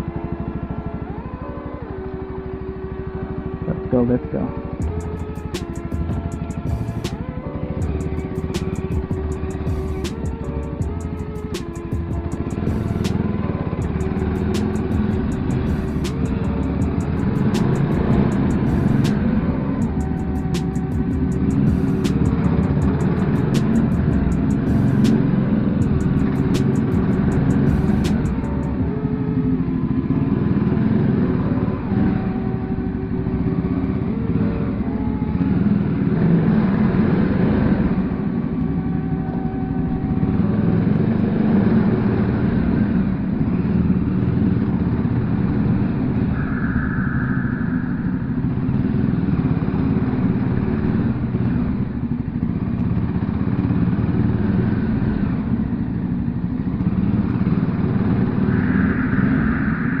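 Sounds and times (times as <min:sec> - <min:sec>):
motorcycle engine running: 0:00.0 - 0:46.7, 0:48.4 - 0:59.0
wind rush: 0:45.3 - 0:50.1, 0:57.4 - 1:00.0.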